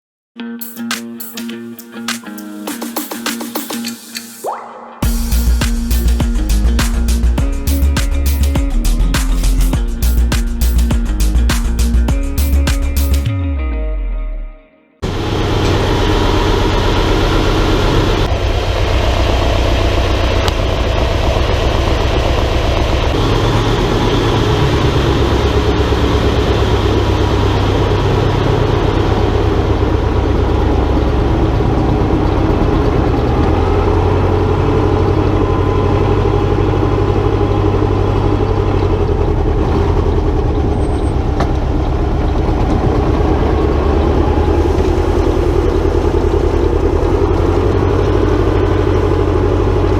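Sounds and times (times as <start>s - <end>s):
tractor diesel engine running: 15.2s - 49.9s.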